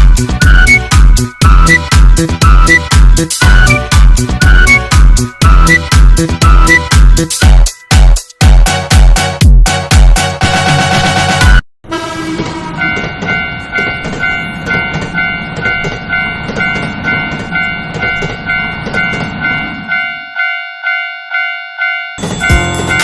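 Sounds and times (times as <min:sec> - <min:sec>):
railroad crossing bell dinging: 0:00.0 - 0:08.3, 0:12.2 - 0:23.0
train rumbling past: 0:11.9 - 0:23.0.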